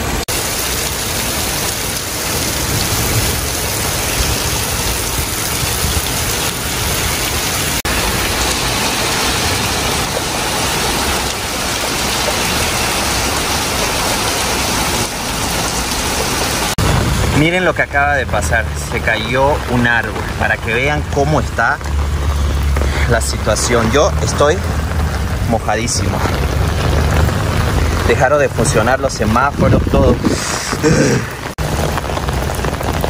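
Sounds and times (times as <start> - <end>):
torrential rain on street: 0.0 - 33.0.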